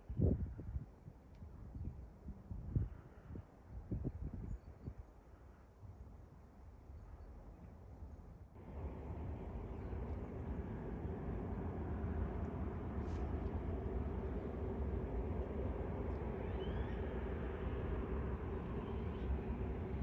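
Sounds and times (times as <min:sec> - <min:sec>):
jet engines rumbling: 0:08.6 - 0:20.0.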